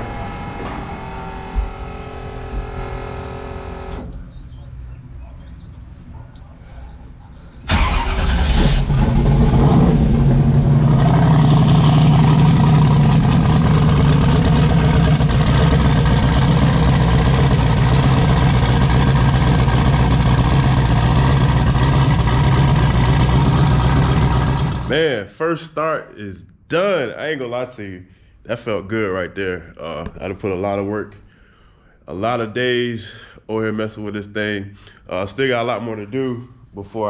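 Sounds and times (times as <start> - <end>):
engine starting and running: 0.0 - 4.4, 7.6 - 25.0.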